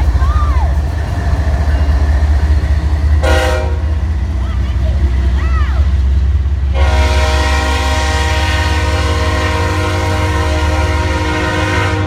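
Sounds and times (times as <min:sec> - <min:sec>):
locomotive engine rumble: 0:00.0 - 0:12.0
locomotive air horn blast: 0:03.2 - 0:03.9, 0:06.7 - 0:12.0.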